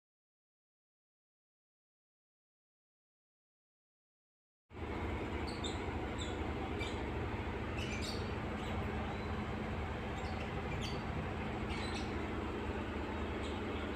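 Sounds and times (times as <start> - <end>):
low hum and hiss: 4.7 - 13.9
small birds chirping: 5.1 - 13.9.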